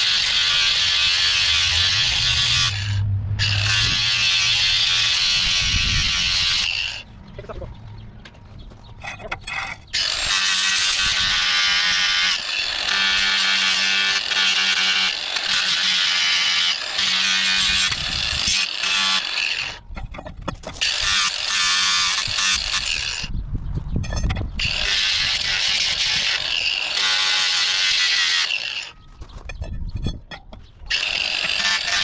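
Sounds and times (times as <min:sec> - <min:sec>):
power grinder grinding metal: 0:00.0 - 0:07.6, 0:09.4 - 0:23.3, 0:24.6 - 0:29.0, 0:30.9 - 0:32.0.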